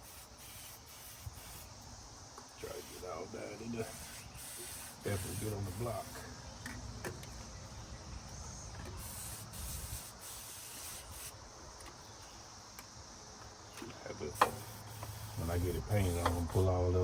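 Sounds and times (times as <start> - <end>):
aerosol can spraying hisses: 0.0 - 1.9, 2.7 - 3.2, 3.8 - 6.3, 9.0 - 11.4, 14.4 - 16.8.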